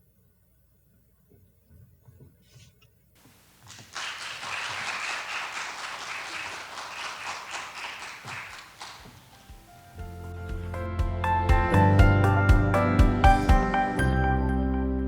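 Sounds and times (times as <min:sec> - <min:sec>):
applause: 0:03.5 - 0:09.9.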